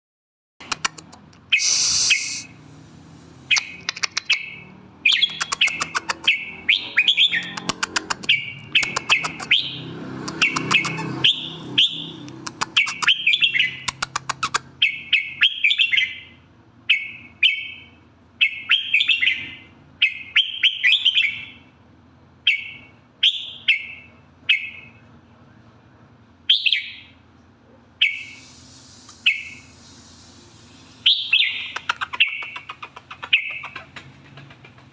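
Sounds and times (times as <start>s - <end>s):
sharp clicks: 0.6s - 2.4s, 3.5s - 4.4s, 5.2s - 6.3s, 7.4s - 9.6s, 12.2s - 13.2s, 13.9s - 14.6s, 31.6s - 34.9s
bird whistled phrases: 0.7s - 2.6s, 3.5s - 9.8s, 10.4s - 16.2s, 28.0s - 34.0s.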